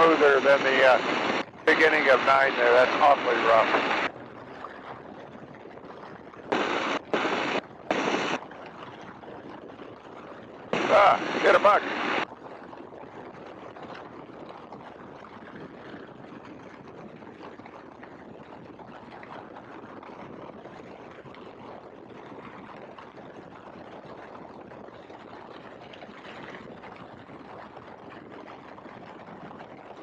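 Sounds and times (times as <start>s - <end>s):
biplane engine and slipstream: 0.0s - 12.3s.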